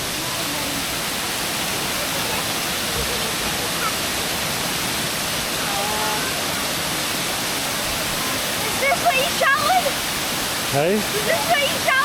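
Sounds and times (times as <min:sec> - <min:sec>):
faint voices: 0:00.0 - 0:10.0
waterfall rushing: 0:00.0 - 0:12.0.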